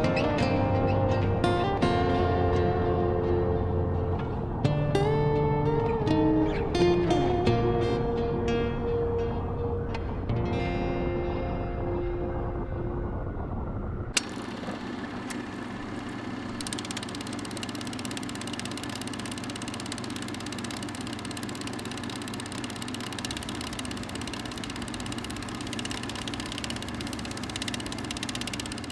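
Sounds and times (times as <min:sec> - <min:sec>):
motorcycle engine idling: 0:10.9 - 0:28.9
sharp click: 0:16.6 - 0:28.9.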